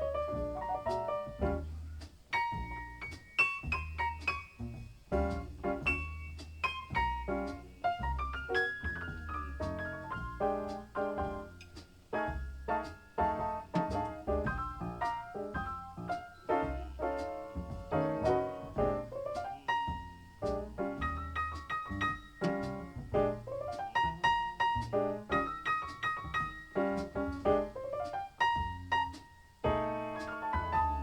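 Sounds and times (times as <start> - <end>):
jazz piano over loudspeakers: 0.0 - 31.0.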